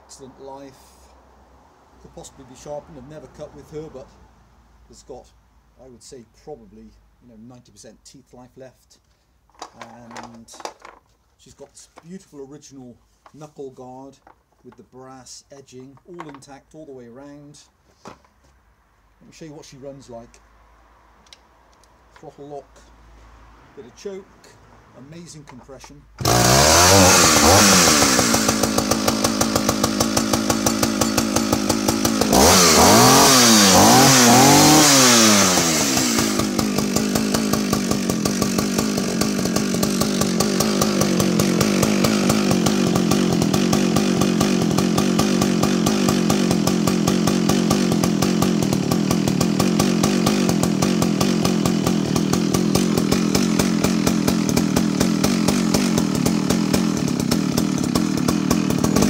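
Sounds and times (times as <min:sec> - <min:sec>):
chainsaw engine revving and idling: 0:02.0 - 0:04.1, 0:09.6 - 0:11.0, 0:25.0 - 0:59.0.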